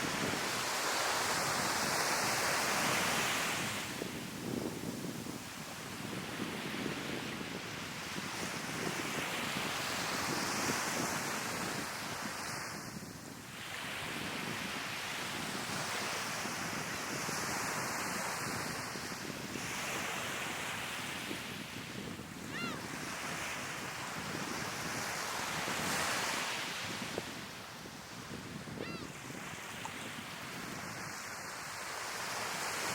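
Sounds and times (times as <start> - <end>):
sea waves washing onto shore: 0.0 - 32.9
wind on the microphone: 0.0 - 32.9
seagull call: 22.5 - 22.8, 28.8 - 29.1.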